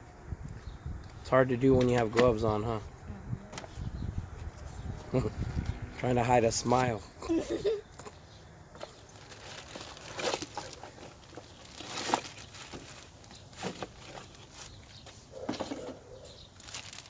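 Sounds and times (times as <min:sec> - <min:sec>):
packaging crinkling and rustling: 0:08.8 - 0:17.0.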